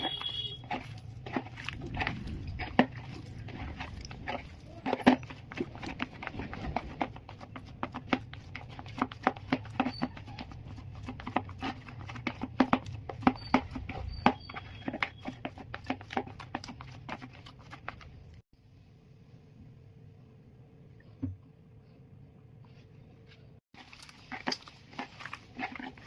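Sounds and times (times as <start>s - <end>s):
potatoes being mashed: 0.0s - 18.4s, 23.7s - 26.0s.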